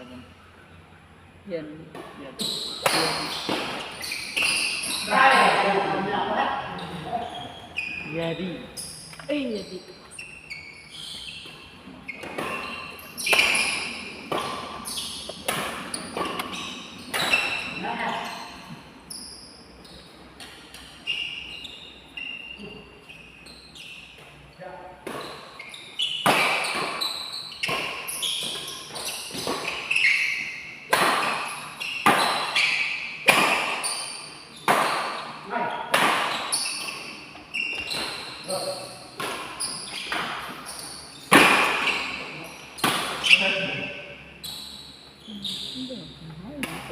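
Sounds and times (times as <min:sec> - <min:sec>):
rackets hitting shuttlecock: 0:02.0 - 0:05.7, 0:11.3 - 0:17.7, 0:26.1 - 0:37.1, 0:39.1 - 0:42.1, 0:42.8 - 0:43.5
shoe squeaks: 0:02.3 - 0:46.3.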